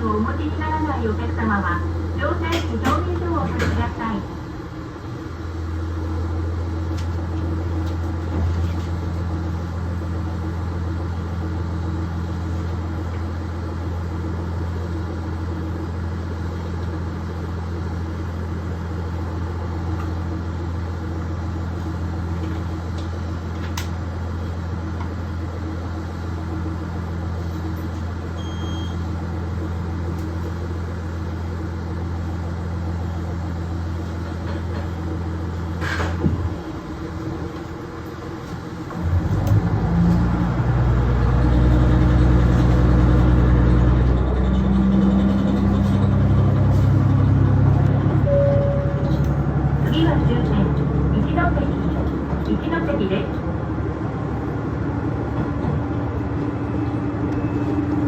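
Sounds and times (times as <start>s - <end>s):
diesel railcar engine idling: 0.0s - 58.0s
short electronic beep: 28.4s - 29.0s, 48.2s - 49.2s, 57.3s - 57.9s.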